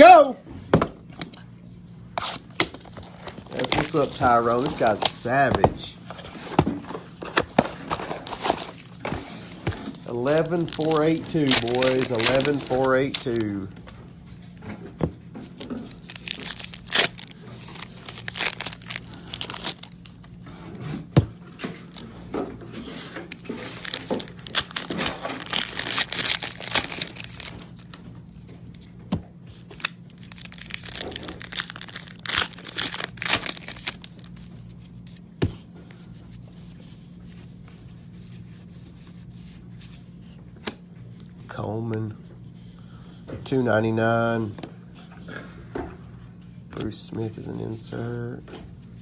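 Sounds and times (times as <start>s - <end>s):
foil packs tearing and crinkling: 2.2s - 5.6s, 7.8s - 13.8s, 15.6s - 20.2s, 23.0s - 27.9s, 29.5s - 34.5s.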